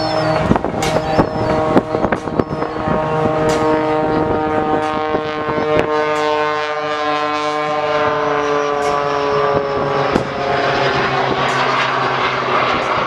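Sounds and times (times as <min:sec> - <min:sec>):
wind gusts: 0:00.0 - 0:06.7
aircraft engine running: 0:00.0 - 0:13.0.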